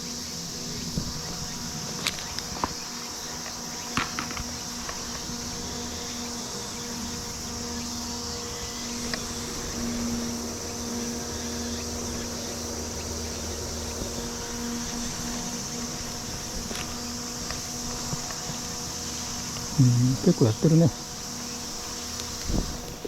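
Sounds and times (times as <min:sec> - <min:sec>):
electric fan hum: 0:00.0 - 0:23.0
high insect chorus: 0:00.0 - 0:23.0
faint ticks: 0:09.0 - 0:09.3.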